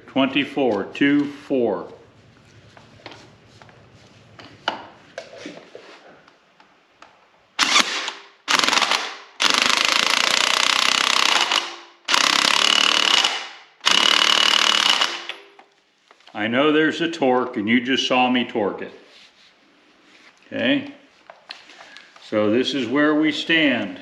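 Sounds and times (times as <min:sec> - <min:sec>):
impact wrench hammering: 0:07.6 - 0:15.5.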